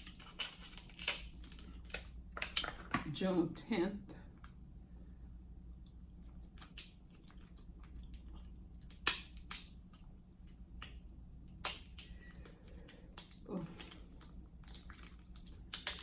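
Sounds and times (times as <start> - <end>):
crab shell cracking: 0.0 - 3.0, 6.3 - 16.0
soft chewing: 4.2 - 16.0.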